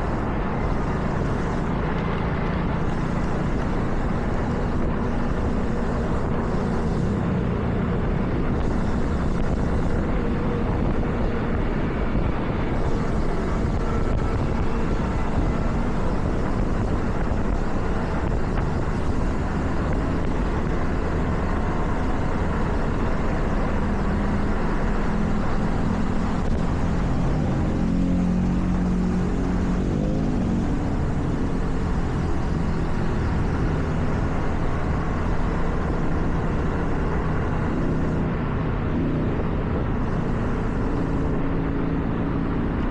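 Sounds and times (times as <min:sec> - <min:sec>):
car tyres hissing on wet road: 0:00.0 - 0:38.6, 0:39.7 - 0:41.6.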